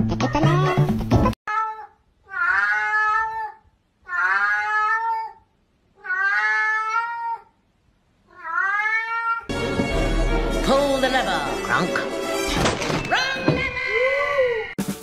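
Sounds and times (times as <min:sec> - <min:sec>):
cat meowing: 0:01.5 - 0:07.6, 0:08.3 - 0:09.5.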